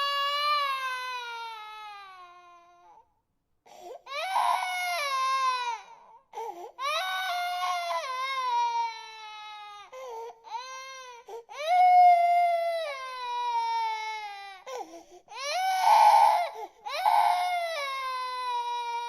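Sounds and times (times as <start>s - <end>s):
infant crying: 0.0s - 3.0s, 3.7s - 19.0s
infant gasping for breath: 3.7s - 4.1s, 6.3s - 6.8s, 9.9s - 10.4s, 14.7s - 15.3s.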